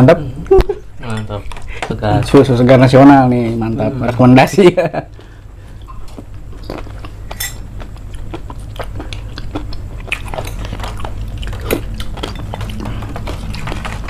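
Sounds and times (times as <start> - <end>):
close chewing: 5.2 - 14.0
metal spoons clicking on dishes: 7.3 - 7.6.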